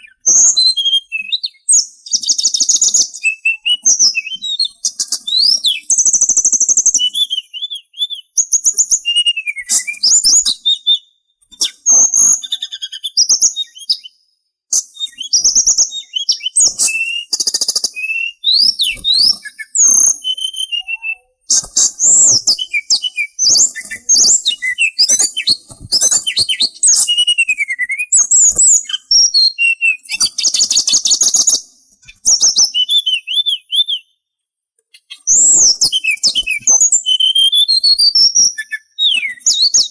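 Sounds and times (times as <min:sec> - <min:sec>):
songbird whistling and trilling: 0:00.0 - 0:34.3, 0:34.9 - 0:39.9.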